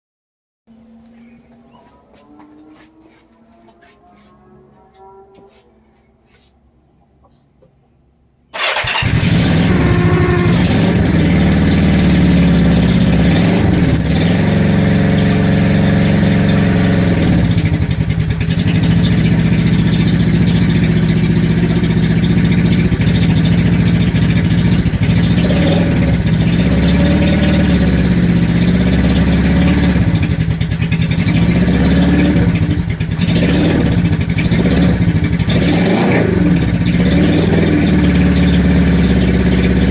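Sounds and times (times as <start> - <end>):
motorcycle engine revving: 0.7 - 6.5, 8.6 - 39.9
squeal on engine start-up: 8.6 - 13.4.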